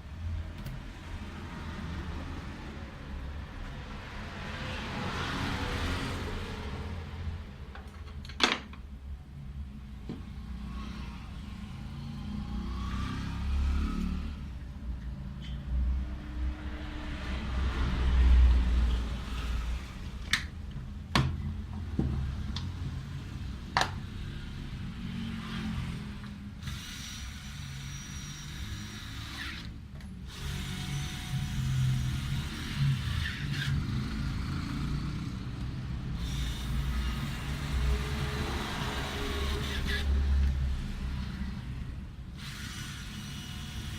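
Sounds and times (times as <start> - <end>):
tools and parts clicking and knocking: 7.7 - 8.9, 23.7 - 24.0.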